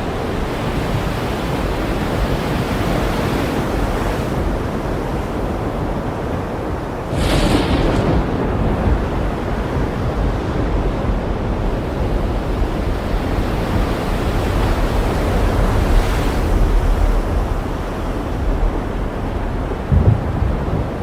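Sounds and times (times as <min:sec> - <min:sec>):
ocean surf washing: 0:00.0 - 0:21.0
wave breaking with hiss: 0:07.1 - 0:09.4.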